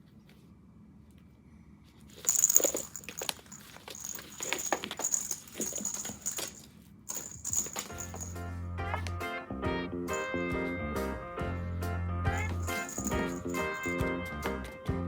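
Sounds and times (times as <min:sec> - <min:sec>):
toy rustling: 0:01.9 - 0:08.4, 0:12.3 - 0:14.0
faint high jingle: 0:02.2 - 0:09.0, 0:10.1 - 0:10.7, 0:12.3 - 0:14.6
music: 0:07.9 - 0:15.0.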